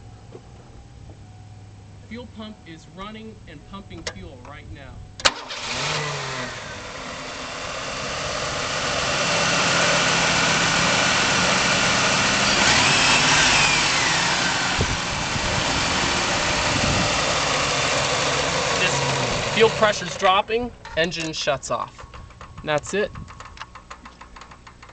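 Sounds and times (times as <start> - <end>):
car engine running: 5.2 - 20.8.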